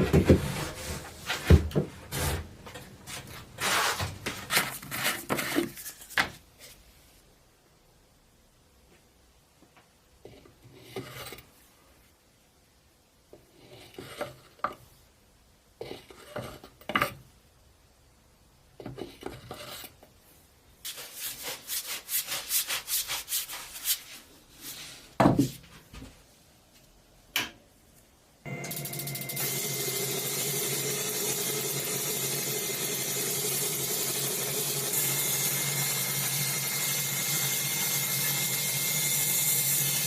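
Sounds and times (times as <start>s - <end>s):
hand scraping and rubbing: 0.0s - 7.2s, 19.0s - 26.4s
fast filing strokes: 20.9s - 24.1s.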